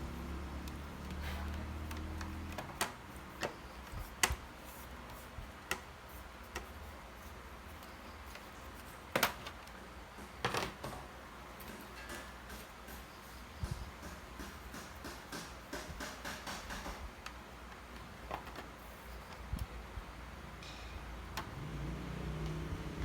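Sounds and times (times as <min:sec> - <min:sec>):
sharp clicks and light knocks: 0:00.2 - 0:06.8.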